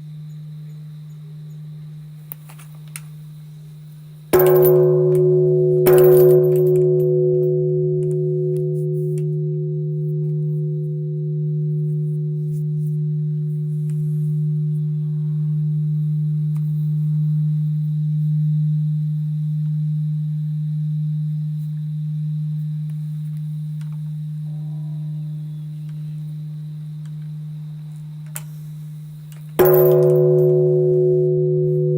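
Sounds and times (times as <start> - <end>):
temple bell ringing: 4.4 - 21.3, 29.6 - 31.9.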